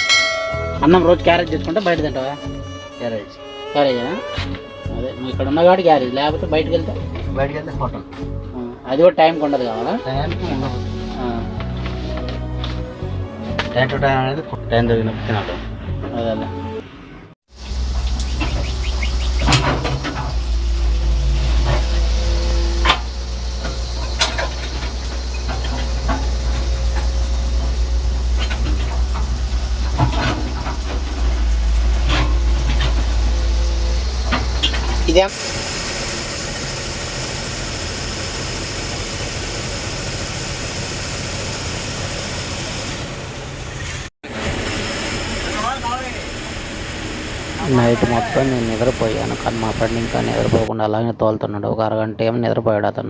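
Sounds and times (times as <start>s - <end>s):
lorry engine rumbling: 0.0s - 50.7s
road noise: 0.0s - 51.0s
sharp knocks and rattles: 17.6s - 35.1s.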